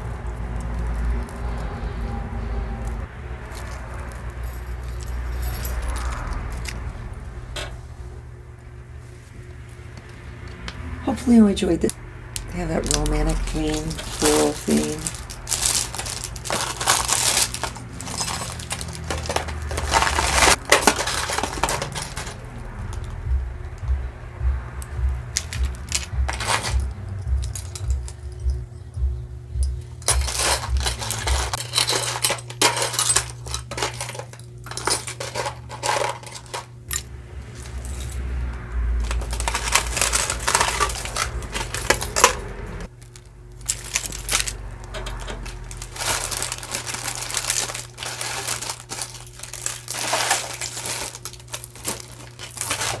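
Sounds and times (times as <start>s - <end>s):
jewelry and beads clinking: 0.0s - 7.7s, 11.0s - 24.0s, 24.7s - 53.0s
background music: 21.2s - 31.6s.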